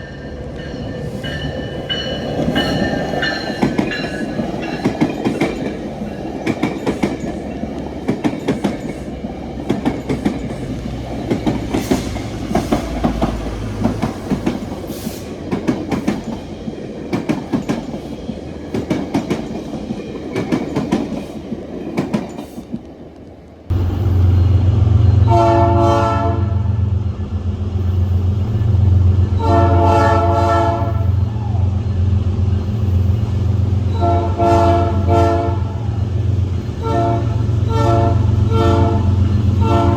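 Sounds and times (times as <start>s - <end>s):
diesel locomotive rumbling: 0.0s - 22.9s, 23.6s - 39.9s
railcar wheels clattering on rails: 0.0s - 25.6s
locomotive air horn blasts: 25.2s - 26.8s, 29.4s - 31.2s, 33.9s - 35.8s, 36.8s - 39.9s.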